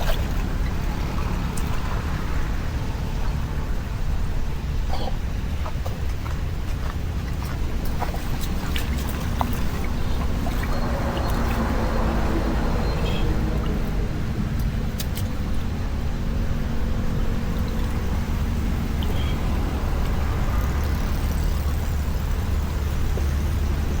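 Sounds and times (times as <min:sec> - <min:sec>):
rushing floodwater: 0:00.0 - 0:24.0
steady low rumble: 0:00.0 - 0:24.0.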